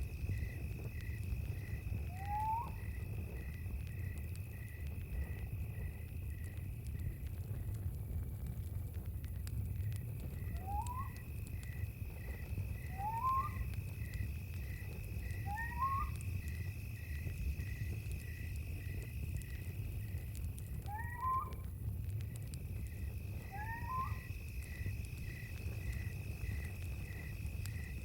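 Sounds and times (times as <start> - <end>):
crickets chirping: 0.0 - 28.0
faint clicks: 0.9 - 28.0
animal rising whistled call: 2.1 - 2.8, 10.5 - 11.2, 12.8 - 13.7, 15.4 - 16.2, 20.9 - 21.6, 23.4 - 24.3.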